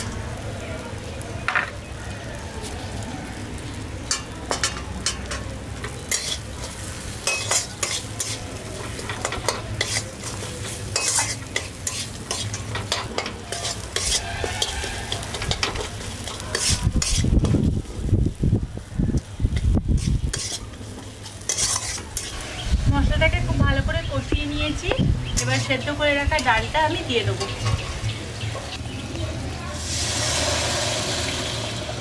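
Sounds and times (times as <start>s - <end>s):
peanuts sizzling in hot oil: 0.0s - 32.0s
spatula scraping pan: 6.0s - 17.6s, 19.9s - 22.6s.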